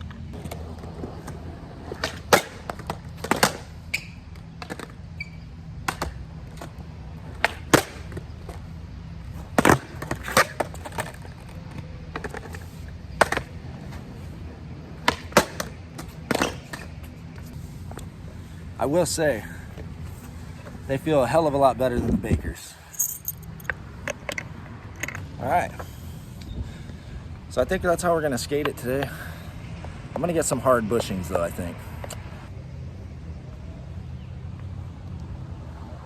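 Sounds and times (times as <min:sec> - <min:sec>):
skateboard wheels rumbling: 0:00.0 - 0:22.1.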